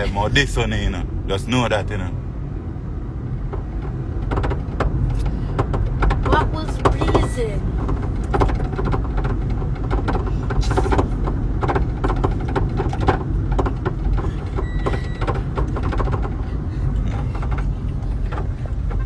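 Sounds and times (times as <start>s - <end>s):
car cabin rumble: 0.0s - 19.0s
short electronic beep: 14.6s - 15.3s.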